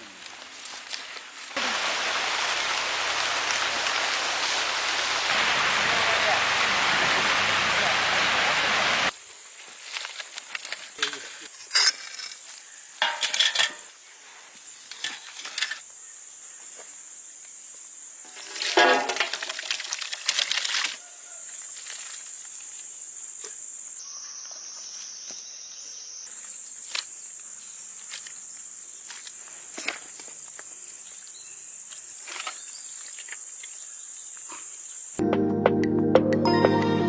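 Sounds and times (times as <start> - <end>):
insects chirring: 9.2 - 35.2
music: 35.2 - 37.0.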